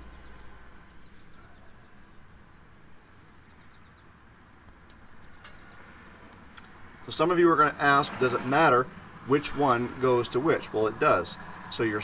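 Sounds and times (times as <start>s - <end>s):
faint bird chirps: 0.0s - 4.1s.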